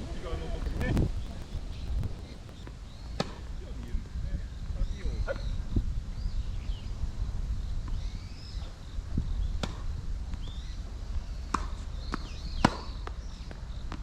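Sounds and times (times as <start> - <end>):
wind rumbling on microphone: 0.0 - 14.0
tennis ball hits and bounces: 11.5 - 13.2.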